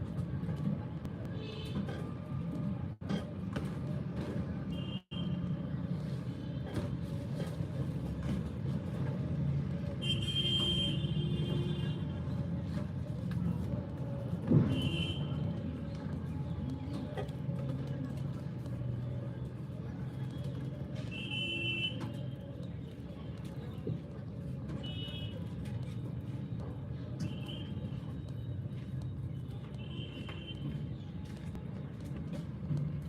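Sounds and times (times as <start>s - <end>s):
low traffic rumble: 0.0s - 33.0s.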